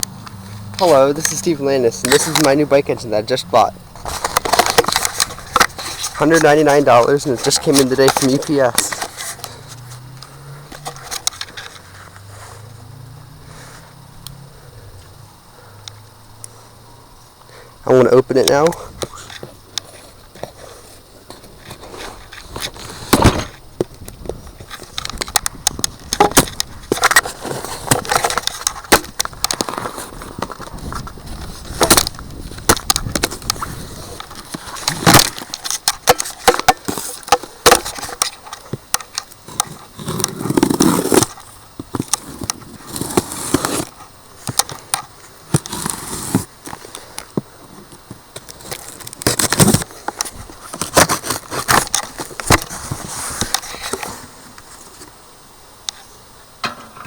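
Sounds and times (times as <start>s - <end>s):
tape and cardboard ripping: 0.4s - 2.6s, 4.0s - 10.1s, 21.4s - 23.6s, 24.7s - 47.0s, 47.9s - 54.3s.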